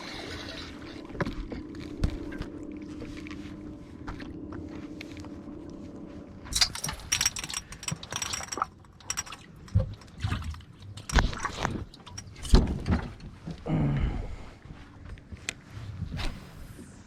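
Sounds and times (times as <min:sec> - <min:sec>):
steady low hum: 0:00.0 - 0:17.0
sharp rattling clicks: 0:06.6 - 0:10.2.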